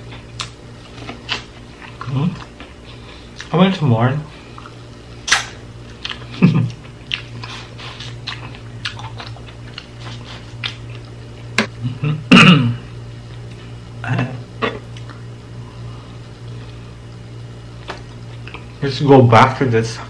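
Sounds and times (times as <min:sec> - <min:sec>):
chewing corn on the cob: 0:04.5 - 0:11.6.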